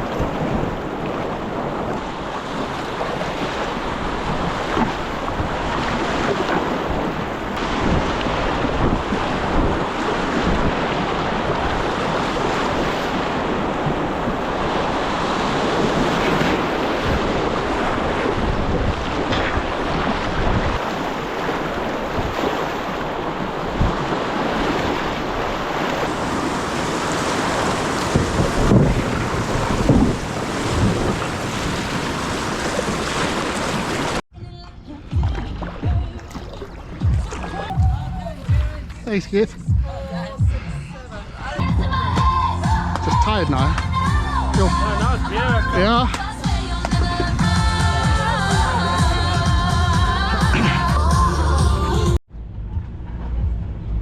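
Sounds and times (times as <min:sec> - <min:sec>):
river water rushing: 0:00.0 - 0:34.2
wind buffeting microphone: 0:00.0 - 0:39.0.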